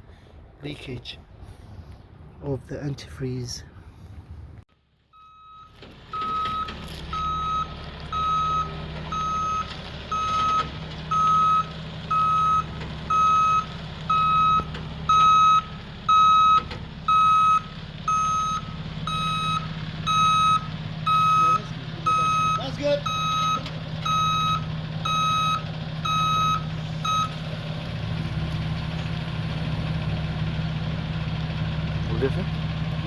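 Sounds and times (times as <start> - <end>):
reversing alarm beeping: 5.1 - 27.4
engine running: 5.7 - 33.0.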